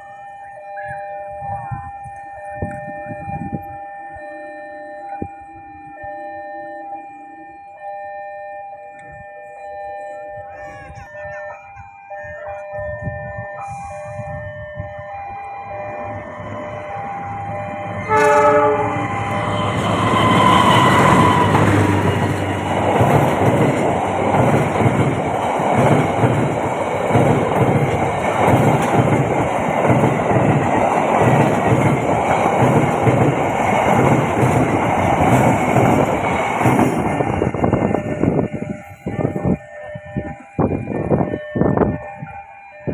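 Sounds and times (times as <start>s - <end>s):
train horn blast: 17.5s - 22.7s.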